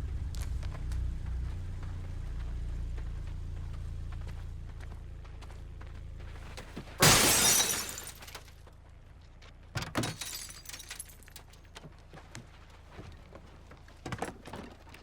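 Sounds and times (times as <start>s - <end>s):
glass shattering: 7.0s - 8.5s, 9.9s - 11.4s.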